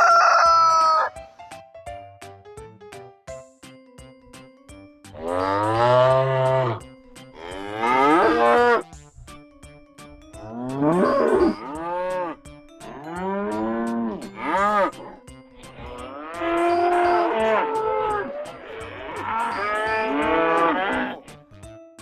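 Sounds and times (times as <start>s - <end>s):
cattle mooing: 5.2s - 6.8s, 7.4s - 8.8s, 10.4s - 21.3s.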